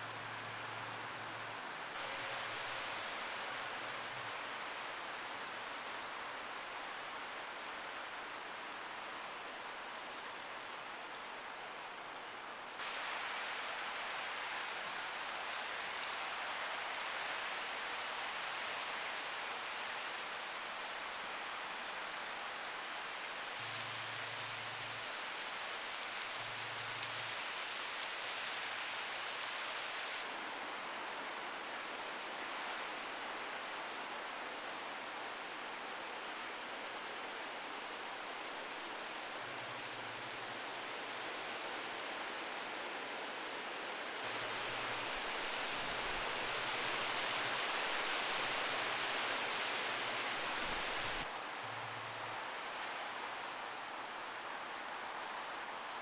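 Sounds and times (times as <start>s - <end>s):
heavy rain: 0.0s - 7.2s, 12.8s - 31.6s, 44.2s - 56.0s.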